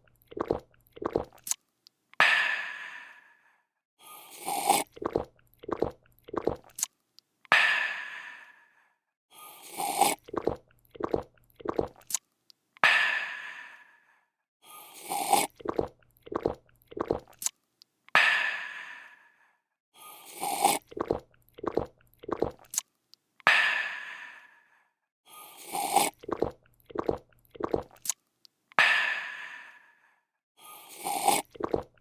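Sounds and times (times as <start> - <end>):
quick gulps: 0.0 - 1.6, 4.3 - 6.9, 9.6 - 12.2, 15.0 - 17.5, 20.2 - 22.8, 25.6 - 28.2, 30.9 - 32.0
slurp: 0.0 - 1.6, 4.1 - 6.9, 9.4 - 12.2, 14.8 - 17.5, 20.1 - 22.8, 25.4 - 28.2, 30.8 - 32.0.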